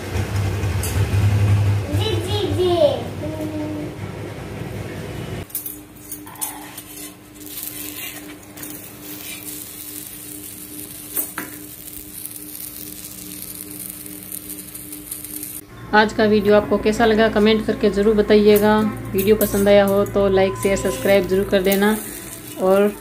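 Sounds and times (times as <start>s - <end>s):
steel dishes and utensils clinking: 5.4s - 9.6s, 18.4s - 23.0s
flatbread sizzling on a griddle: 6.4s - 15.6s, 20.8s - 23.0s.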